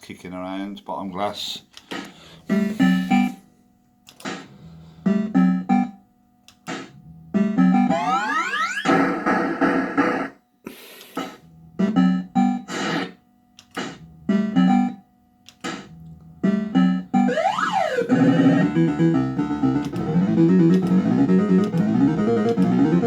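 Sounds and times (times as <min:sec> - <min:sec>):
chiptune melody: 0:02.4 - 0:03.5, 0:04.7 - 0:06.0, 0:07.1 - 0:10.4, 0:11.5 - 0:13.1, 0:13.8 - 0:23.0
fruit machine bleeping tunes: 0:07.6 - 0:08.9, 0:16.5 - 0:23.0
electronic pitch sweep: 0:07.8 - 0:10.3, 0:17.3 - 0:23.0.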